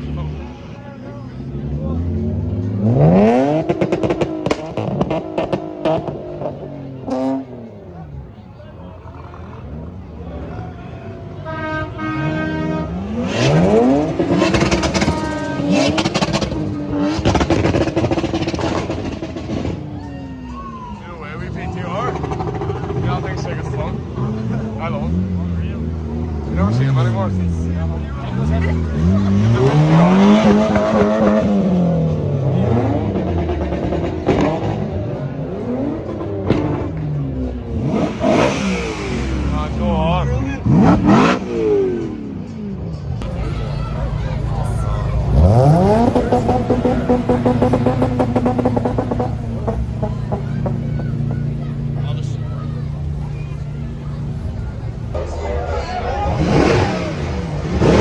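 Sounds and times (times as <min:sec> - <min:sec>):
car engines running: 0:00.0 - 0:42.6, 0:43.2 - 0:55.3
car engine revving: 0:01.4 - 0:07.8, 0:12.3 - 0:19.8, 0:35.5 - 0:42.0, 0:43.2 - 0:55.2.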